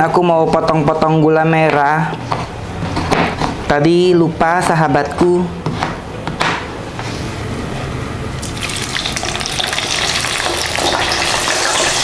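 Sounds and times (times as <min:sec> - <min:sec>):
liver frying in hot oil: 0:08.4 - 0:12.0.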